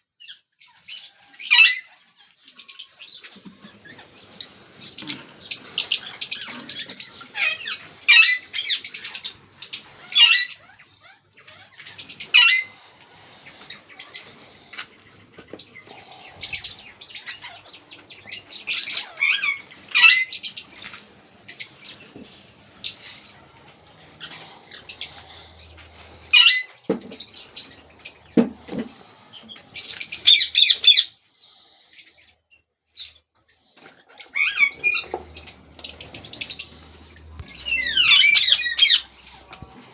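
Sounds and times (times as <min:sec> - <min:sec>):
parrots squawking: 0:00.9 - 0:32.2, 0:34.0 - 0:39.9.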